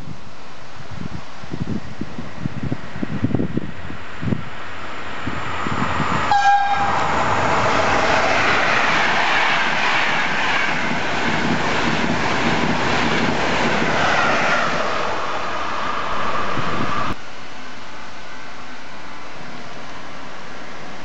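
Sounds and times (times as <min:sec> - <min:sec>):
falling whine of passing train: 0:00.0 - 0:21.0
train wheels rushing on rail: 0:01.0 - 0:17.2
train horn blast: 0:06.3 - 0:07.3.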